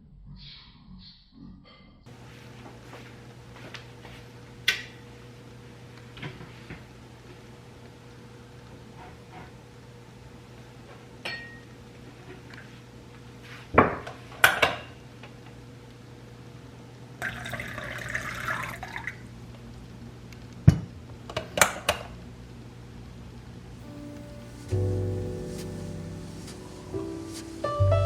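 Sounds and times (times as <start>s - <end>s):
glass tableware clinking: 11.3s - 11.6s
liquid pouring: 17.2s - 19.2s.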